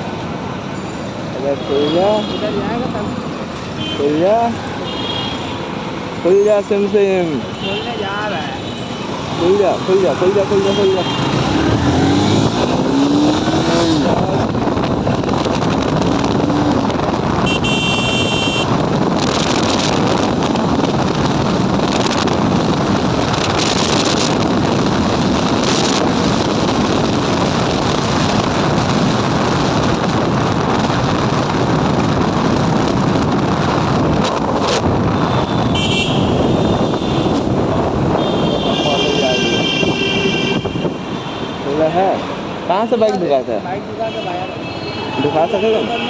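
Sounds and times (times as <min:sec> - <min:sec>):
wind rush on microphone: 0:08.6 - 0:41.4
motorcycle accelerating: 0:08.9 - 0:41.0
vehicle horn: 0:10.4 - 0:14.0, 0:17.4 - 0:18.8, 0:35.2 - 0:41.6.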